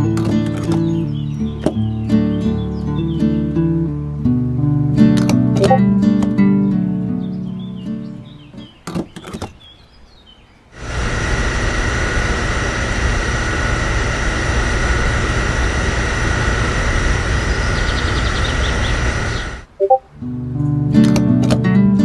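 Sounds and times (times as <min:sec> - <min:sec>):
small electric motor whirring: 0:10.8 - 0:19.7.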